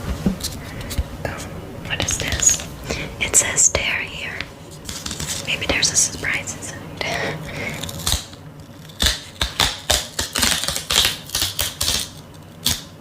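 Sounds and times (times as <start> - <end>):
paper packaging crinkling: 4.7 - 6.4.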